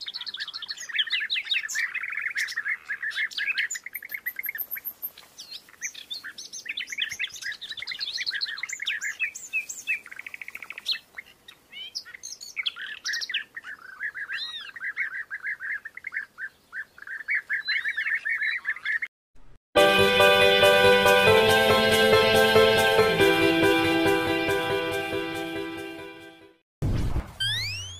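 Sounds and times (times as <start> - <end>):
birds chirping: 0.0 - 19.1
bird trill: 11.7 - 19.1, 27.4 - 27.9.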